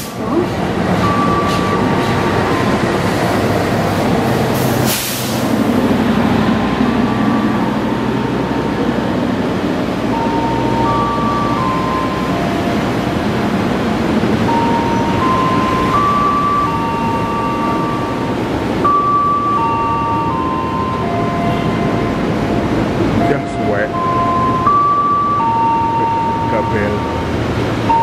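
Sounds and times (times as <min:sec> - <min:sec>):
train rumbling past: 0:00.0 - 0:28.0
short hiss: 0:04.6 - 0:05.4.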